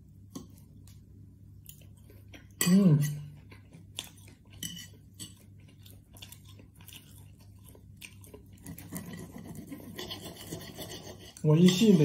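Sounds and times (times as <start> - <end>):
person chewing food: 0.0 - 11.9
knife and fork on plate: 4.6 - 5.4, 8.6 - 12.0.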